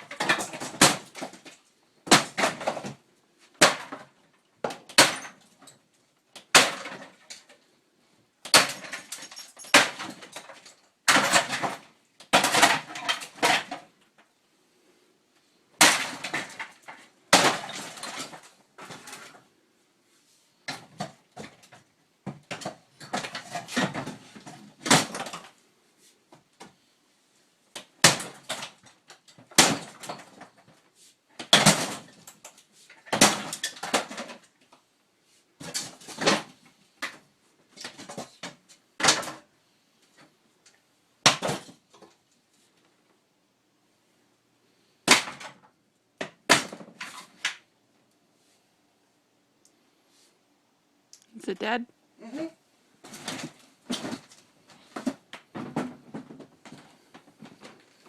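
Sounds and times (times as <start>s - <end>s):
breaking material clattering: 0.0s - 3.0s, 8.5s - 13.9s
sink being smashed: 4.8s - 5.4s, 8.4s - 13.8s, 15.8s - 18.5s, 29.4s - 30.4s, 33.0s - 34.4s.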